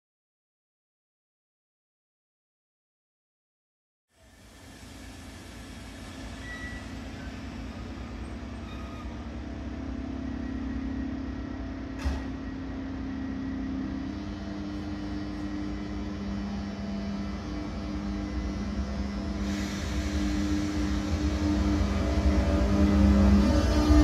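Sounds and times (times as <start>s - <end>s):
electric train humming: 4.2s - 24.0s.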